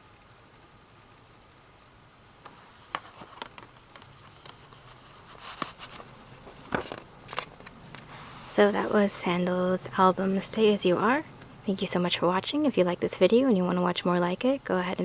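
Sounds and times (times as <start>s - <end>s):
cd case clicking and tapping: 2.4s - 4.6s.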